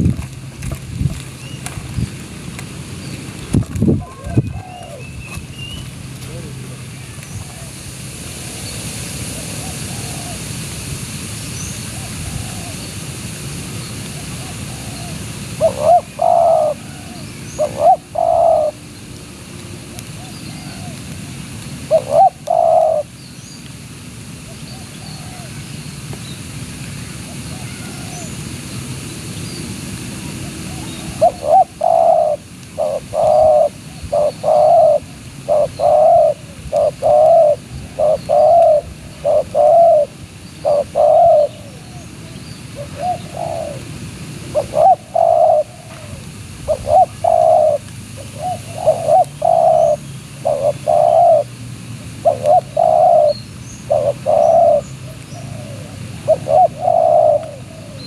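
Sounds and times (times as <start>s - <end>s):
dove cooing: 4.0s - 5.4s, 9.4s - 10.5s, 12.0s - 12.8s, 14.2s - 18.8s, 20.2s - 21.0s, 21.9s - 23.1s, 27.3s - 28.4s, 30.4s - 42.1s, 42.8s - 43.9s, 44.5s - 51.5s, 52.2s - 58.0s.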